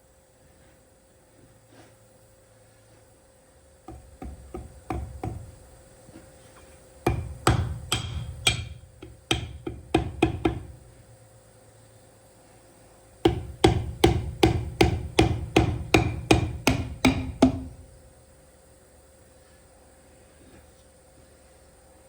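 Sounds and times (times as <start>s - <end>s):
hammer striking metal: 7.1s - 10.8s, 13.3s - 17.8s.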